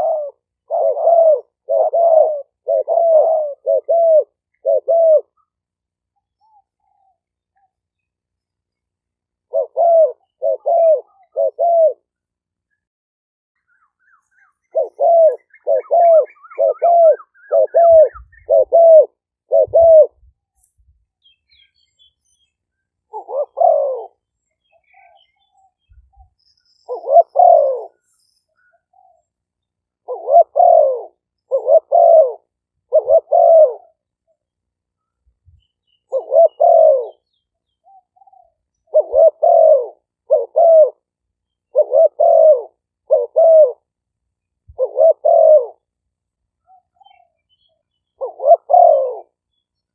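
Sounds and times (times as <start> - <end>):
doves cooing: 0.0 - 5.6, 9.4 - 12.1, 14.1 - 20.2, 23.1 - 24.2, 26.8 - 29.3, 29.9 - 34.2, 36.0 - 41.1, 41.7 - 43.9, 44.7 - 45.9, 46.6 - 49.4.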